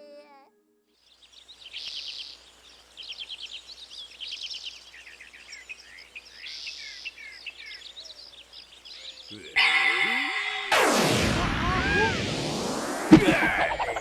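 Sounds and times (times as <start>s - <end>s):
birds chirping and twittering: 1.0s - 10.8s.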